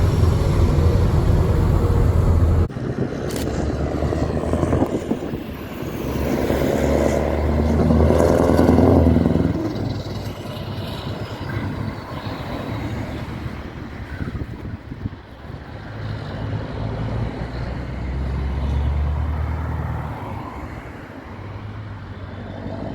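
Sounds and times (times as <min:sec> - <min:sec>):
diesel truck engine running: 0:00.0 - 0:13.9.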